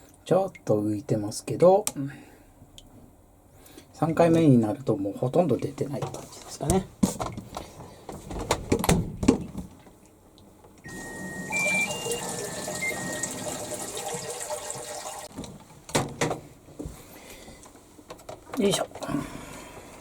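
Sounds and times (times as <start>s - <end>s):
stepped electronic beeps: 10.9s - 13.4s
water rushing into tub: 10.9s - 15.3s.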